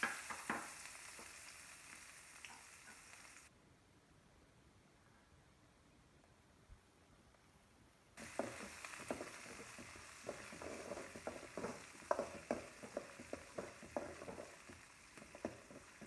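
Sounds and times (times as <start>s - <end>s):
onion and garlic sizzling in oil: 0.0s - 3.5s, 8.2s - 16.0s.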